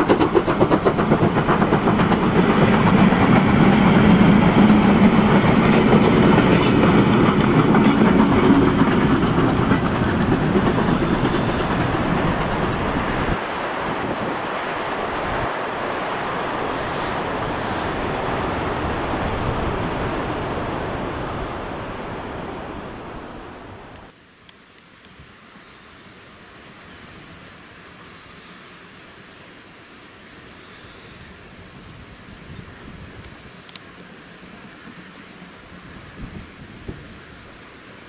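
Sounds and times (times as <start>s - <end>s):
freight wagons clattering past: 0.0s - 13.4s
high wheel squeal: 10.2s - 13.5s.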